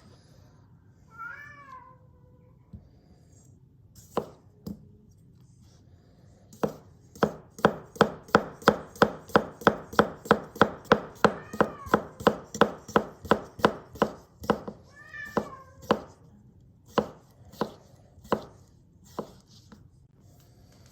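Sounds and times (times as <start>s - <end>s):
knife cutting on a cutting board: 4.0s - 4.8s, 6.5s - 16.2s, 16.9s - 20.9s
cat meowing: 11.3s - 12.2s, 14.9s - 15.9s.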